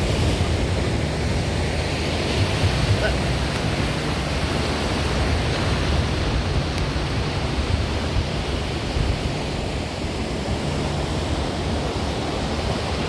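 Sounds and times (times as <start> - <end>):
ocean surf: 0.0 - 13.0
wind noise on microphone: 0.0 - 13.0.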